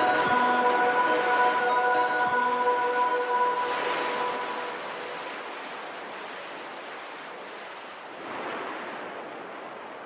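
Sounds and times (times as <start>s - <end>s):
sea waves washing onto beach: 2.6s - 10.0s.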